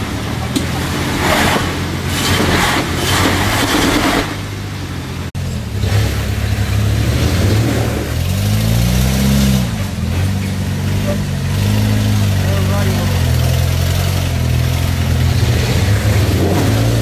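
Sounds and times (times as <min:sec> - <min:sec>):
off-road vehicle engine revving: 0:00.0 - 0:17.0
bursts of rushing noise: 0:12.5 - 0:17.0.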